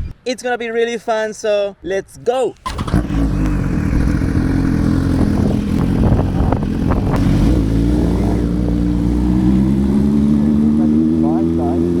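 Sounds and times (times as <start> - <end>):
motorcycle engine running: 2.7 - 12.0.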